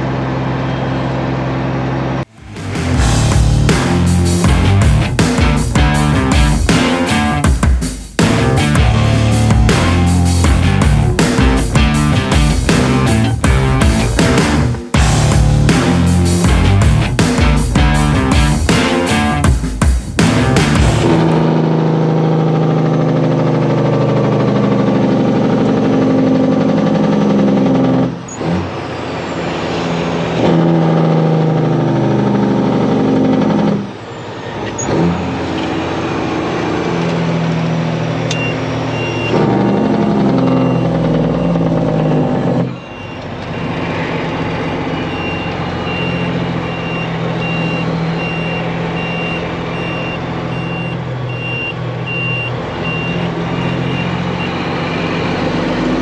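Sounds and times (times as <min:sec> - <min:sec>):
diesel truck engine shifting gears: 0:00.0 - 0:56.0
short high beeps: 0:45.0 - 0:54.5.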